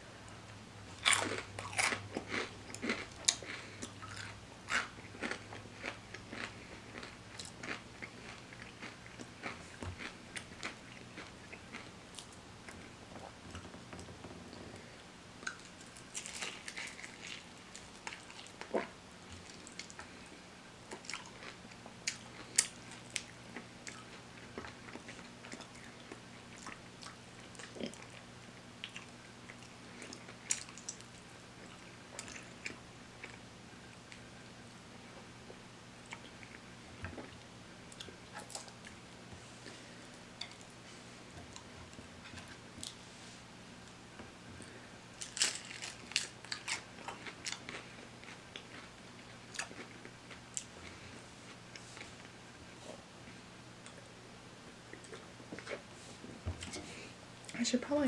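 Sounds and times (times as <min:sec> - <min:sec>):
chewing crispy food crunches: 0:01.0 - 0:12.8, 0:15.4 - 0:20.3, 0:20.9 - 0:33.4, 0:44.6 - 0:52.4.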